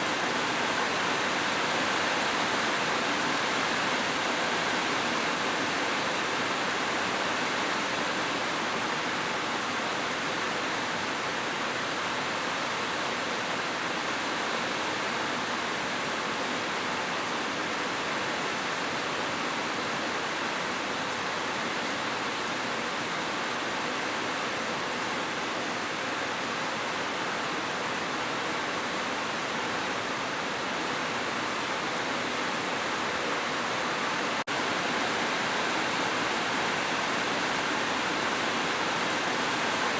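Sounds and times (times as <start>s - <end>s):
heavy rain hiss: 27.0s - 39.9s.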